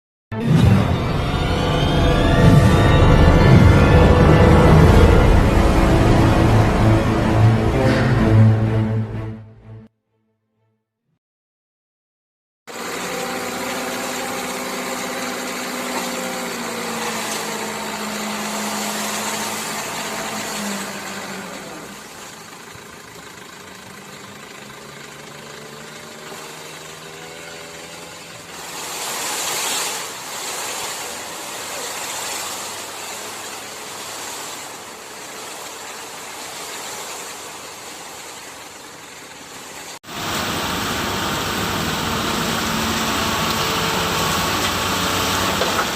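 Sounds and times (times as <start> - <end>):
truck diesel engine running: 0.4 - 9.0, 12.7 - 45.9.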